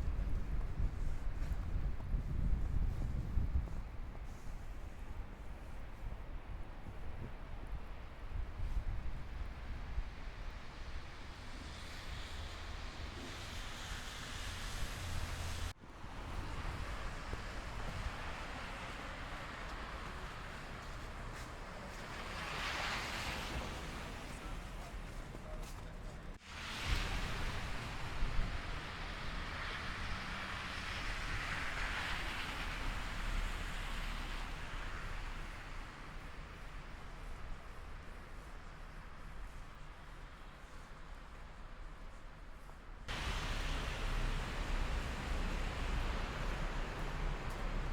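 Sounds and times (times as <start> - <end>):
wind buffeting microphone: 0.0 - 13.2
tyres hissing on slushy street: 0.0 - 47.9.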